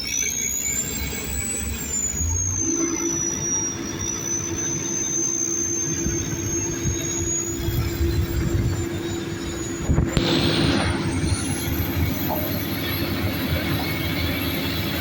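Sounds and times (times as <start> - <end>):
high-pitched whine: 0.0 - 15.0
heavy diesel machines rumbling: 0.5 - 15.0.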